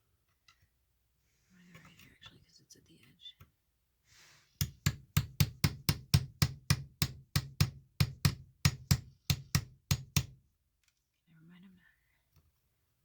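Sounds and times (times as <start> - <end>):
hammer striking rock: 4.6 - 10.4.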